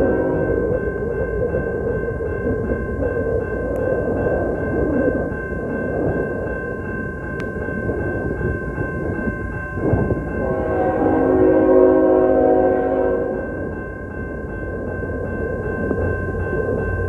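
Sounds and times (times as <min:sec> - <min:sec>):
train horn blast: 0:00.0 - 0:00.8, 0:10.3 - 0:13.6
crossing warning bell ringing: 0:00.0 - 0:17.0
moving train rumble: 0:00.0 - 0:17.0.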